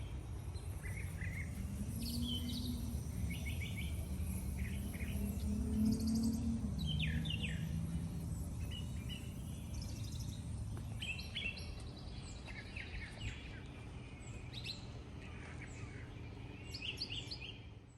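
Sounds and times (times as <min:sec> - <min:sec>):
air conditioner winding down: 0:00.9 - 0:11.6.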